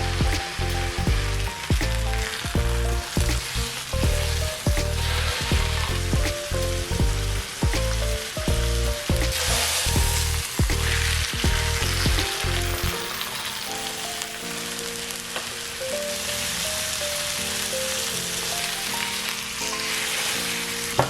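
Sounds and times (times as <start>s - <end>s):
background music with beat: 0.0s - 14.6s
food sizzling in pan: 0.0s - 21.0s.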